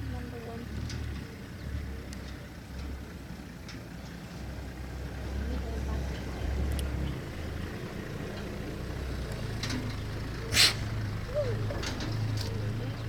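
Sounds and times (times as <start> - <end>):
vehicle engine idling: 0.0 - 13.0
short sharp hiss: 10.5 - 10.9.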